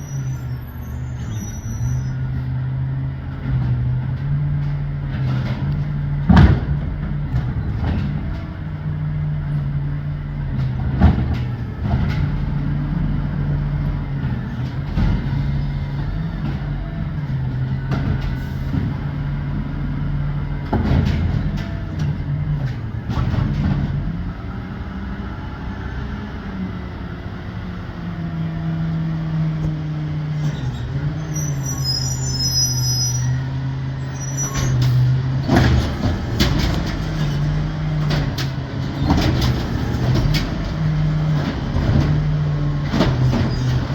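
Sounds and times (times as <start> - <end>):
garbage truck engine humming: 0.0 - 43.9
sharp knocks and bangs: 5.2 - 8.4.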